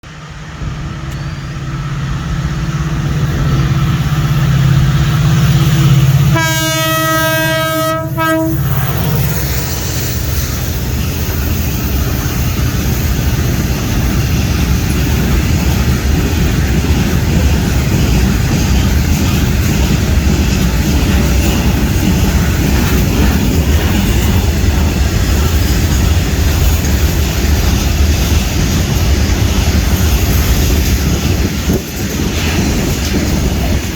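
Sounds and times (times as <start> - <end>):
carriages clattering on rails: 0.0 - 33.9
train engine hum: 0.0 - 33.9
train horn blast: 6.2 - 9.2.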